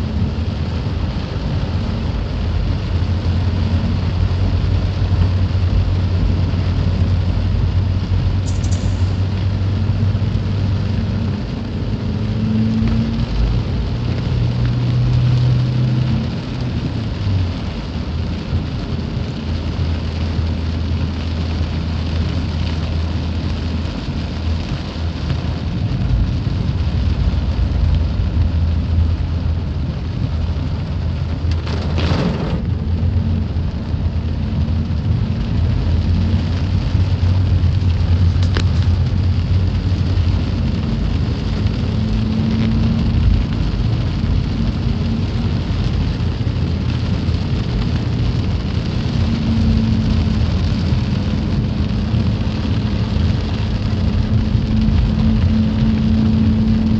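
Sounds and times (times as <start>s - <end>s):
rain hiss: 0.0s - 56.9s
vehicle engine humming: 0.0s - 56.9s
short crackle: 8.4s - 9.4s, 31.2s - 36.5s, 37.4s - 40.0s.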